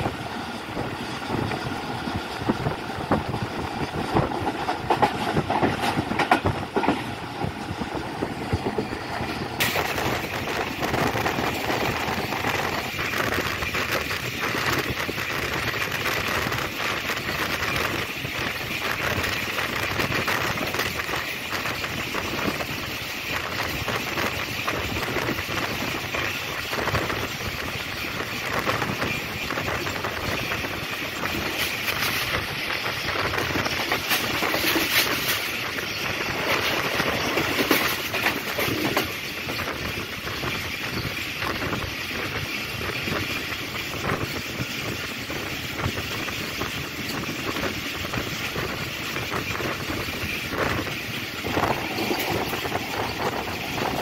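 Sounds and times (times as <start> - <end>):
train wheels rattling on rails: 0.0 - 54.0.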